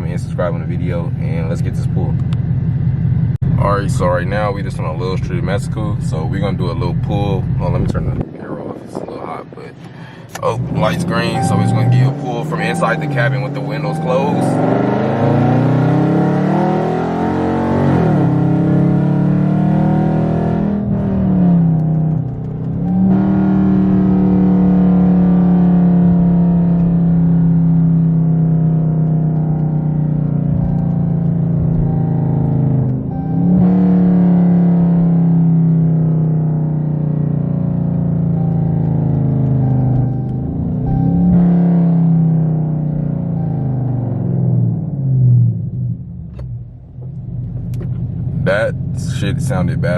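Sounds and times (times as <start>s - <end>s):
car engine accelerating from inside: 10.3s - 49.9s.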